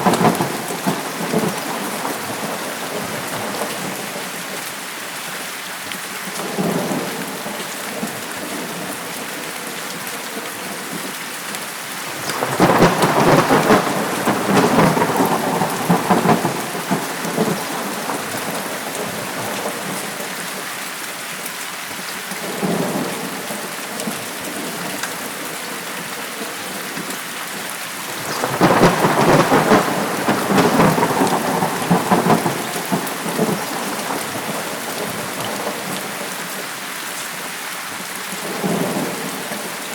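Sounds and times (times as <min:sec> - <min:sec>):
thunder rolling: 0:00.0 - 0:04.2, 0:12.0 - 0:20.0, 0:28.0 - 0:36.2
heavy rain falling: 0:00.0 - 0:39.9.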